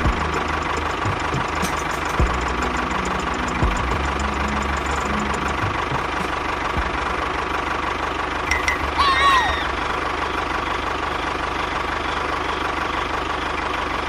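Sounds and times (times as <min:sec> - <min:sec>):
high gliding tones: 0:08.5 - 0:09.9.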